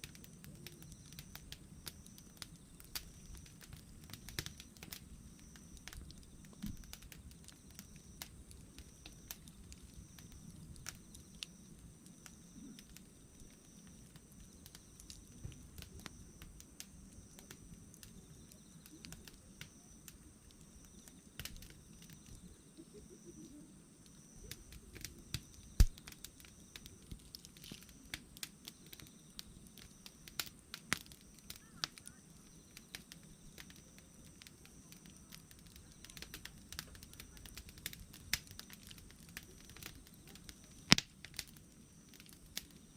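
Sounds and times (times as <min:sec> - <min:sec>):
campfire crackling: 0:00.0 - 0:42.9
loud fire pop: 0:25.8 - 0:26.0, 0:40.9 - 0:41.1.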